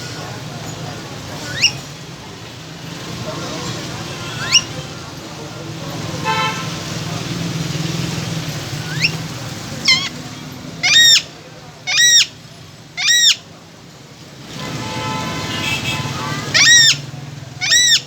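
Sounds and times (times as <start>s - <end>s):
parrot harsh calls: 1.4s - 1.8s, 4.3s - 4.8s, 8.9s - 9.2s, 9.8s - 10.2s, 10.8s - 12.4s, 13.0s - 13.4s, 16.4s - 18.0s.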